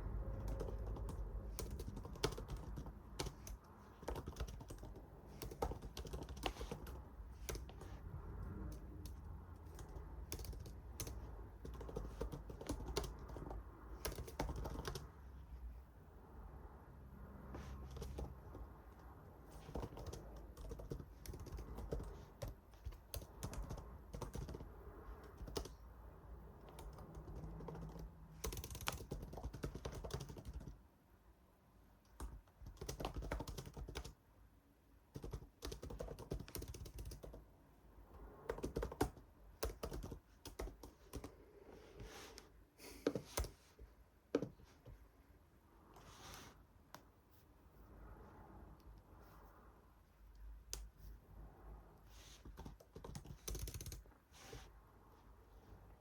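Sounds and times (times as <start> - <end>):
computer keyboard typing: 0.1 - 15.4, 17.6 - 30.8, 32.2 - 34.2, 35.1 - 37.5, 38.4 - 41.4, 52.4 - 54.2.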